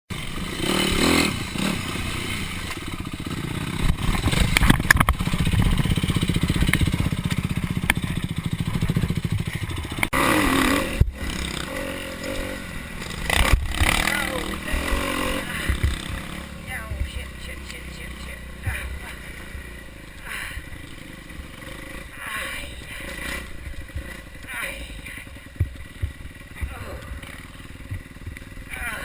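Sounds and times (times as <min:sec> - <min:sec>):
dirt bike engine revving: 0:00.1 - 0:29.0
clatter: 0:02.6 - 0:10.2.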